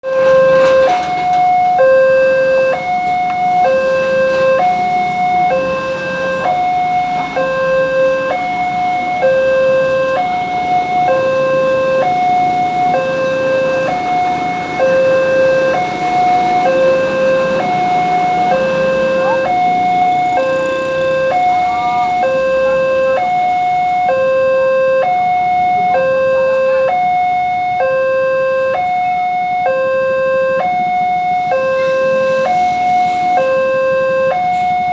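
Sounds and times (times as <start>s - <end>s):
two-tone crossing alarm: 0.0s - 34.9s.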